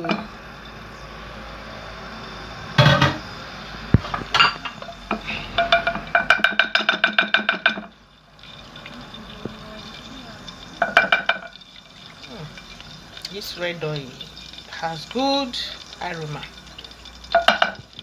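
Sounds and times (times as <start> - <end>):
steady gas hiss: 0.0 - 18.0
metal cookware clattering: 2.8 - 16.5, 17.3 - 18.0
ringing metal rattle: 4.2 - 12.8.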